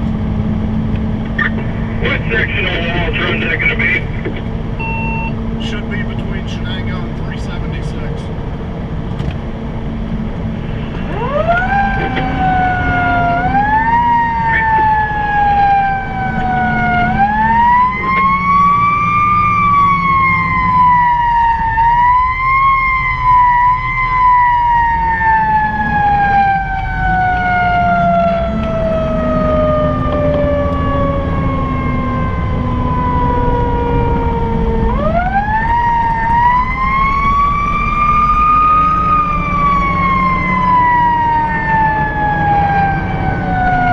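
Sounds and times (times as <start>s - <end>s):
fire engine siren wailing: 0.0s - 43.9s
truck engine running: 0.0s - 43.9s.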